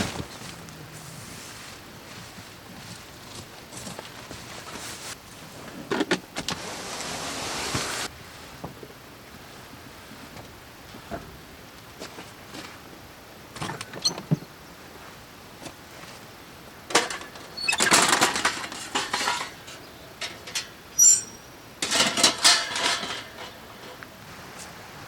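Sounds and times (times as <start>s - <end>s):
rustling and clattering: 0.0s - 7.1s, 16.9s - 20.8s, 21.8s - 24.8s
objects clicking and knocking: 16.9s - 20.8s.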